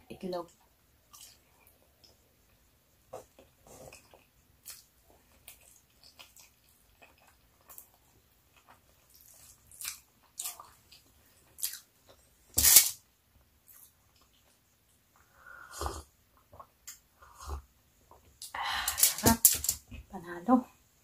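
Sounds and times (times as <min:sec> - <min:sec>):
chewing and lip smacks: 0:03.4 - 0:11.8.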